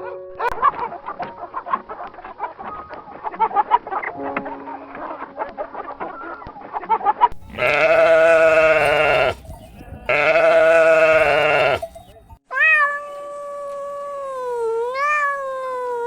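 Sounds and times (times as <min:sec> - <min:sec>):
chickens clucking: 0:07.3 - 0:12.4
goat bleating: 0:07.4 - 0:13.0.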